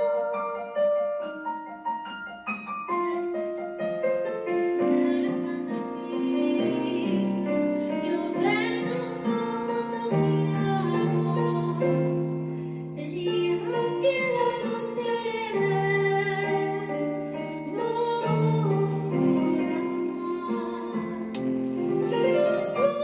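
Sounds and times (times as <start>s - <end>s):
piano accompaniment: 0.0s - 23.0s
women's choir singing: 22.1s - 23.0s.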